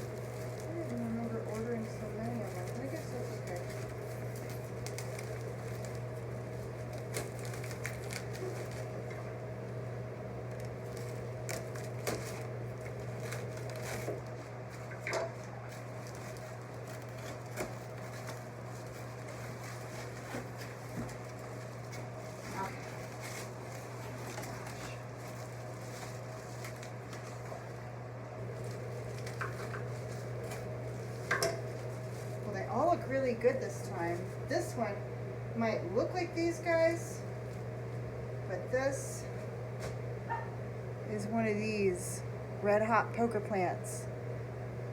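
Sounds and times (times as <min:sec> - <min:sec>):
plant packaging rustling: 0:00.0 - 0:09.4, 0:10.4 - 0:27.8, 0:28.4 - 0:34.8
low electrical hum: 0:00.0 - 0:44.9.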